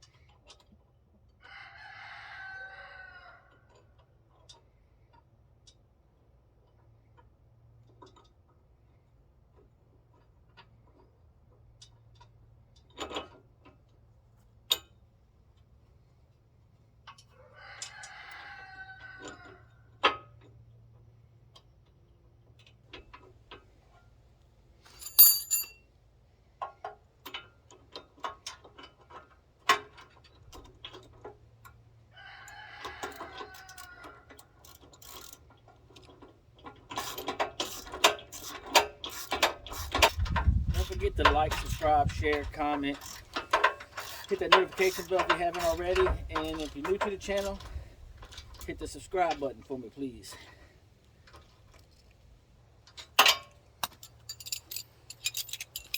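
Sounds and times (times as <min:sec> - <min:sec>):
rooster crowing: 0:01.5 - 0:03.5, 0:17.4 - 0:19.6
hand tools clanking on metal: 0:24.9 - 0:25.8, 0:40.8 - 0:49.5, 0:53.1 - 0:55.9
ratchet clicks: 0:53.8 - 0:55.9.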